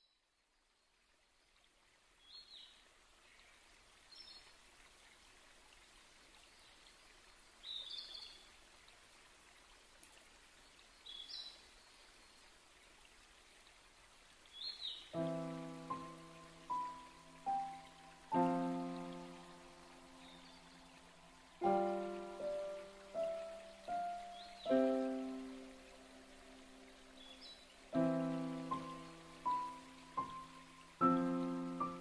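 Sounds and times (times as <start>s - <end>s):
water hissing: 15.1s - 32.0s
bird chirping: 20.1s - 21.0s, 21.6s - 25.4s.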